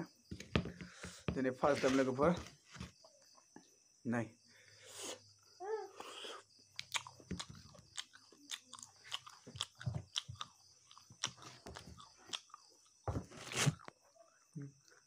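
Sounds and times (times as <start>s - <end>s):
person chewing food: 6.0s - 14.0s.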